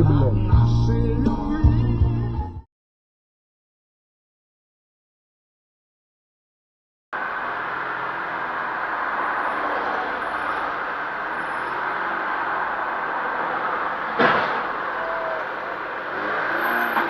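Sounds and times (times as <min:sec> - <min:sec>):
car road and engine noise: 0:07.2 - 0:17.0
loud thump: 0:14.2 - 0:14.7.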